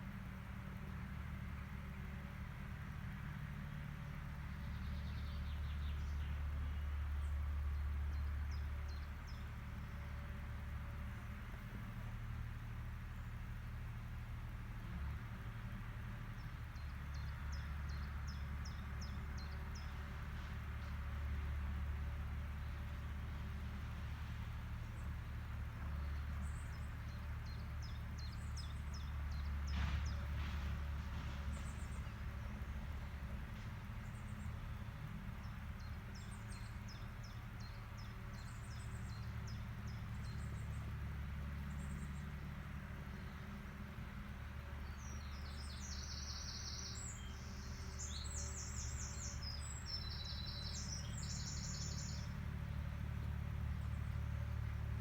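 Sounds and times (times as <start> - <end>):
farm machine engine droning: 0.0 - 55.0
small bird chirping: 45.1 - 52.3.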